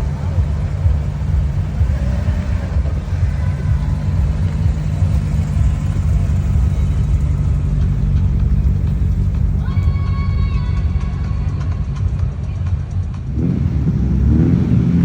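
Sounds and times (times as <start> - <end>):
car engine rumble: 0.0 - 15.0
steady musical tones: 0.0 - 15.0.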